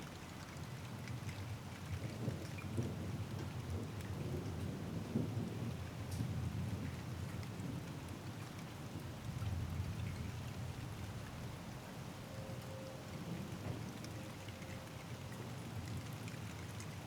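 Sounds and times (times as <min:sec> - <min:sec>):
rain pattering: 0:02.0 - 0:12.0.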